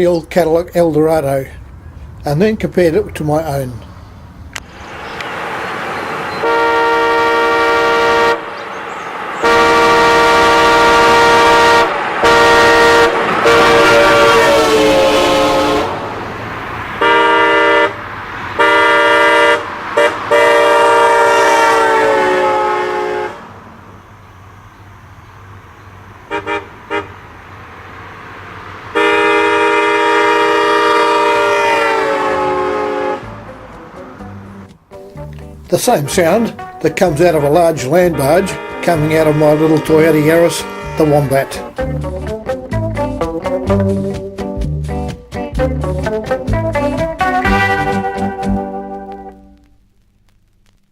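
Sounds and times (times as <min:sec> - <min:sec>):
car horn chord blasts: 0:06.0 - 0:16.1, 0:16.9 - 0:23.5, 0:26.2 - 0:27.2, 0:28.9 - 0:33.7, 0:35.2 - 0:42.4, 0:46.1 - 0:49.1
quick horn taps: 0:38.0 - 0:42.3.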